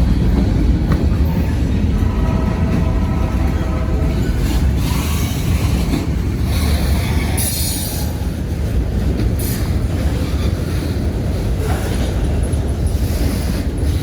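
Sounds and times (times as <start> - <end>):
freight train wheels rumbling: 0.0 - 14.0
wheels squealing: 1.2 - 8.4.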